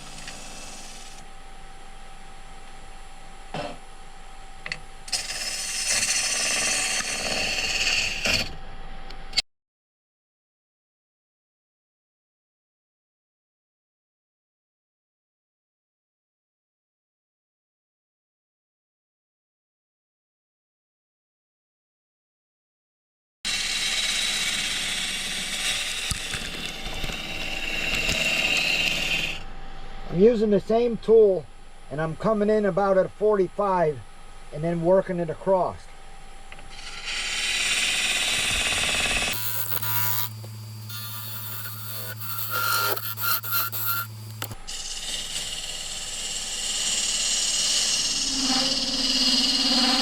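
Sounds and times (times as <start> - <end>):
tool shaving wood: 0.0 - 1.2, 5.1 - 8.5, 23.5 - 29.4, 36.7 - 50.0
wood lathe humming: 0.0 - 1.2, 5.1 - 8.5, 23.5 - 29.4, 36.5 - 50.0.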